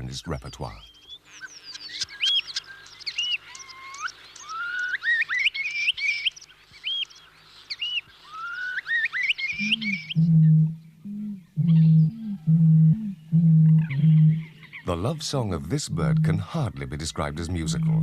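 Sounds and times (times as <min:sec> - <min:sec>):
starling singing: 0:08.5 - 0:18.0.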